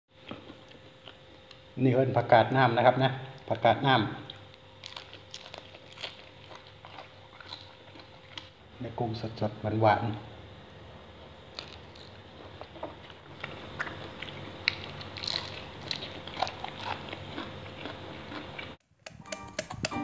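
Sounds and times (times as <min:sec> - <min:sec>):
man chewing and crunching: 0:00.2 - 0:01.7, 0:04.3 - 0:08.7, 0:11.5 - 0:19.9
crisp crackles and clicks: 0:04.3 - 0:08.6, 0:11.5 - 0:20.0.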